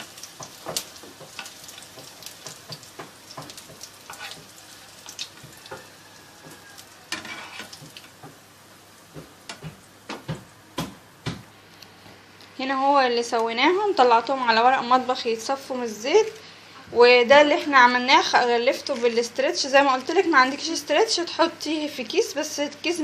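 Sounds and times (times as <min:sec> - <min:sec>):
patties sizzling in oil: 0:00.0 - 0:11.3, 0:17.7 - 0:23.0.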